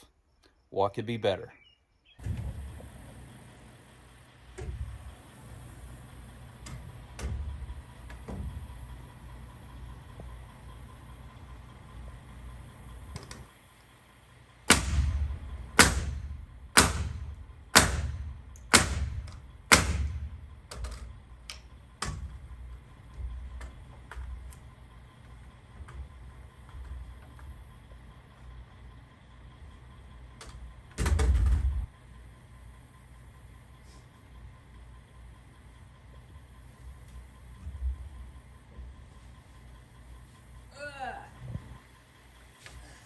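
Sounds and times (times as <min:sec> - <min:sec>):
hammer blows: 0:14.7 - 0:22.4
low rumble: 0:14.7 - 0:28.0.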